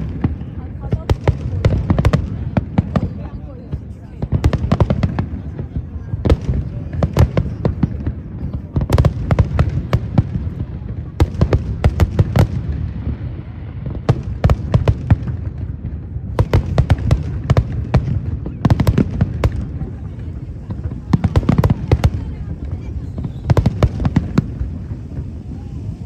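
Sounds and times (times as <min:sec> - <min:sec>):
fireworks cracking and banging: 0:00.0 - 0:26.0.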